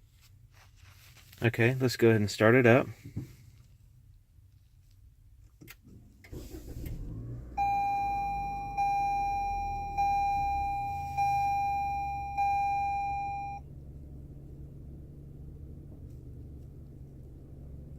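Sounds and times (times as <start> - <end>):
car engine idling: 5.9 - 17.9
dashboard warning chime: 7.6 - 13.6.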